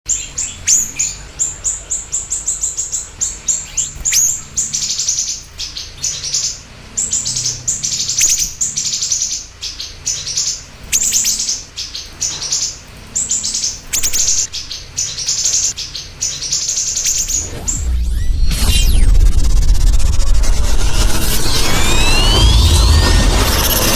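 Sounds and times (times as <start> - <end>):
rising swish: 17.2 - 23.9.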